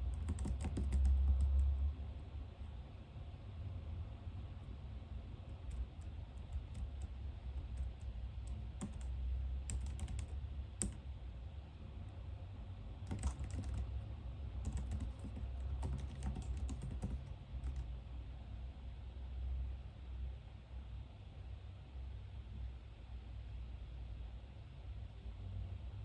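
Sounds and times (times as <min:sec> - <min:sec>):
computer keyboard typing: 0:00.0 - 0:01.8, 0:05.4 - 0:11.0, 0:13.0 - 0:17.9
steady low hum: 0:00.0 - 0:26.0.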